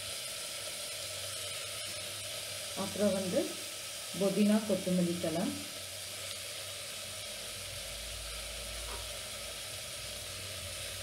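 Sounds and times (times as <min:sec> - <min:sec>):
leaves sizzling in hot oil: 0:00.0 - 0:11.0.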